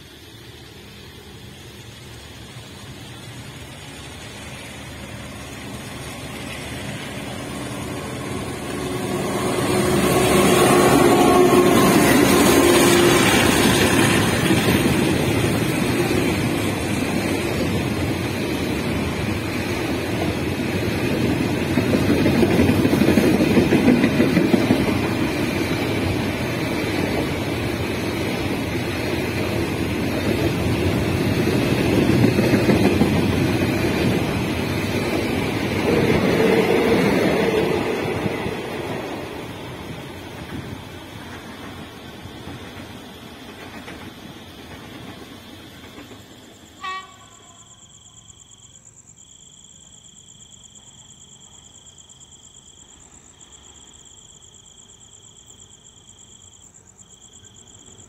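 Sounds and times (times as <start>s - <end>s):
diesel locomotive passing: 0.0s - 49.1s
freight wagons rolling on rails: 0.9s - 46.4s.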